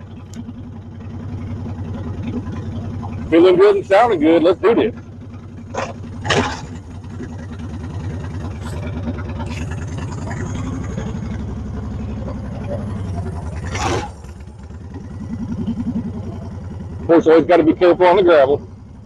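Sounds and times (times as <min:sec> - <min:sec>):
motorcycle engine pulling away: 0:00.0 - 0:19.0.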